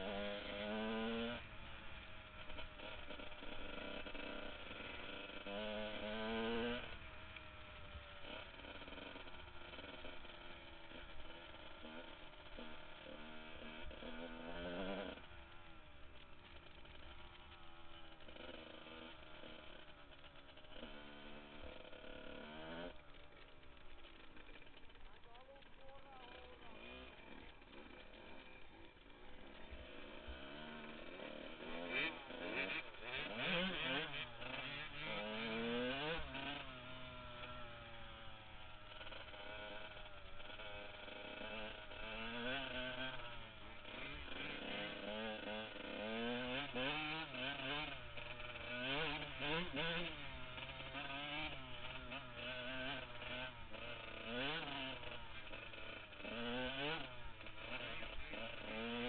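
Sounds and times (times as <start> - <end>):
two-stroke motorcycle engine revving: 0.0 - 59.0.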